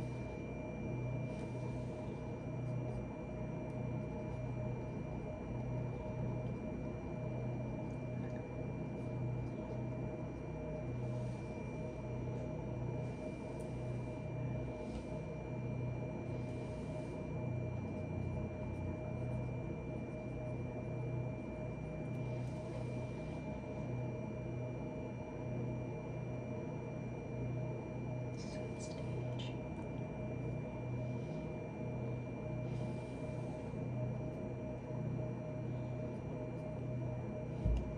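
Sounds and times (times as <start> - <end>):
electrical hum: 0.0 - 37.9
faint high whine: 0.0 - 37.9.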